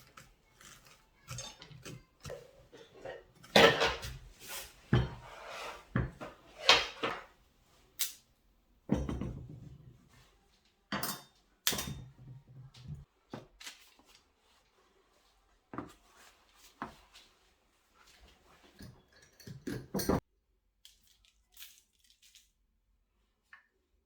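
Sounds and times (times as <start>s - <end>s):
cookware and utensils clattering: 0.0s - 7.4s, 8.8s - 10.3s, 10.9s - 13.1s, 18.4s - 20.3s.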